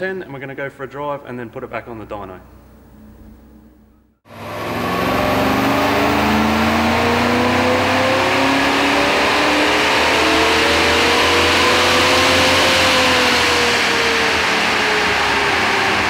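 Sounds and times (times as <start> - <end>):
car engine running under load: 4.3 - 16.0.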